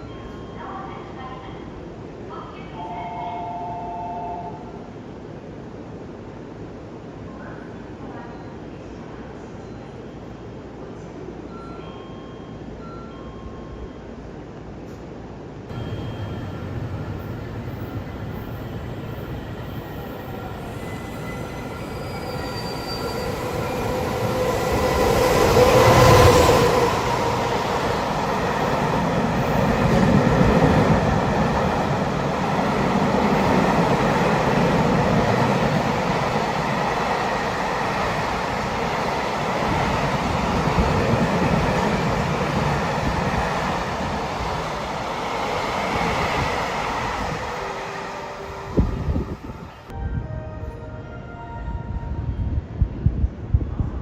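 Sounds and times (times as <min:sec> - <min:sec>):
train rumbling on rails: 0:14.7 - 0:54.0.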